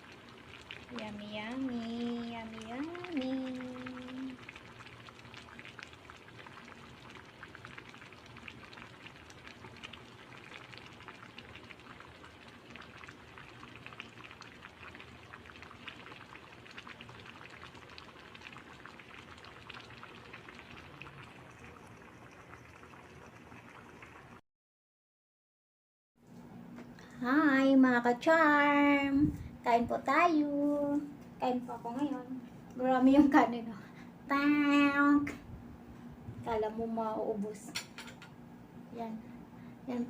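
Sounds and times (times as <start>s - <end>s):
pot of broth boiling: 0.0s - 24.4s.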